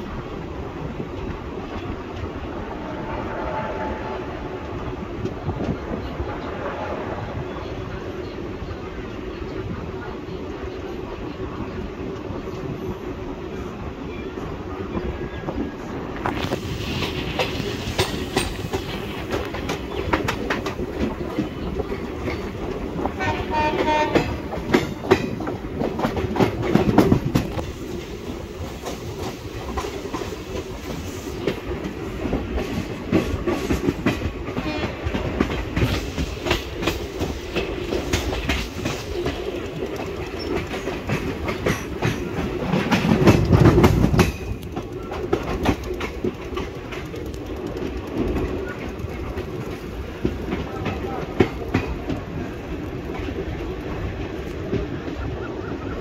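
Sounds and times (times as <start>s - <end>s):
train rumble and wind rush: 0.0s - 56.0s
train horn: 2.8s - 4.6s, 23.1s - 24.7s, 34.5s - 35.2s
wheels clacking over rail joints: 16.2s - 55.8s.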